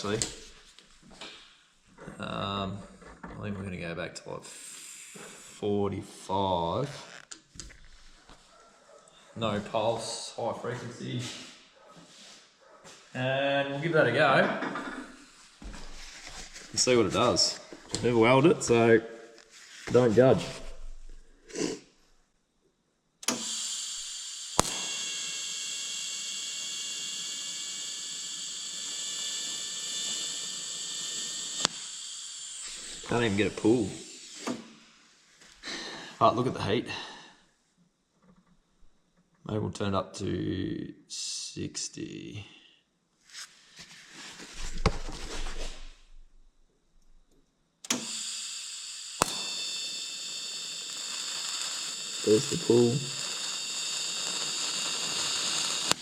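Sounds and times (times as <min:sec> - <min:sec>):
welding arc hissing and whining: 0:00.0 - 0:00.7, 0:04.5 - 0:05.6, 0:14.7 - 0:21.7, 0:23.2 - 0:34.8, 0:47.9 - 0:56.0
welding arc start clicks: 0:23.2 - 0:34.7, 0:47.9 - 0:56.0.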